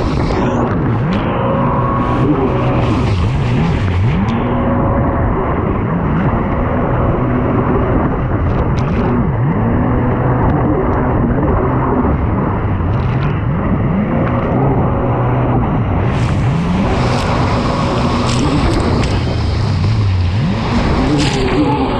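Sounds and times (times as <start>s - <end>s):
jet ski engine revving: 0.0s - 21.9s.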